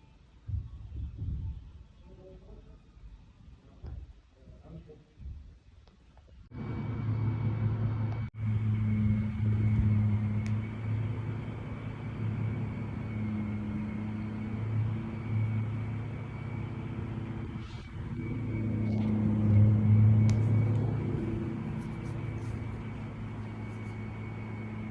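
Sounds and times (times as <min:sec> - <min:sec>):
faint high whine: 0:06.5 - 0:24.9
motor drone: 0:06.5 - 0:24.9.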